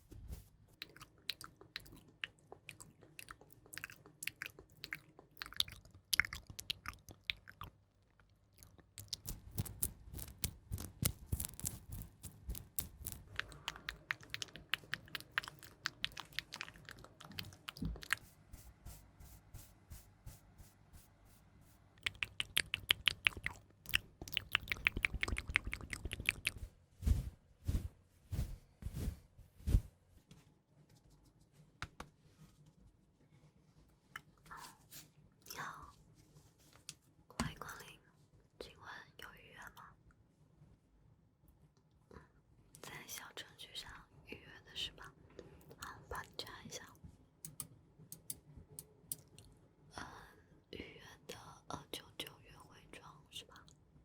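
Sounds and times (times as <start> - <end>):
crisp clicks and crackles: 8.2 - 18.2, 22.0 - 26.6.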